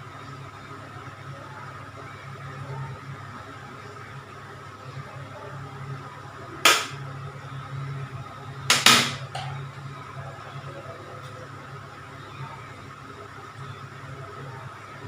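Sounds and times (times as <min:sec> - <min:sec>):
utensils knocking against cookware: 0:08.7 - 0:09.6.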